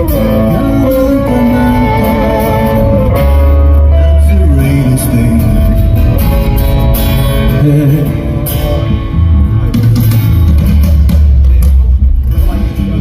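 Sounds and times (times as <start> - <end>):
person singing: 0.0 - 8.9
live rock band playing: 0.0 - 13.0.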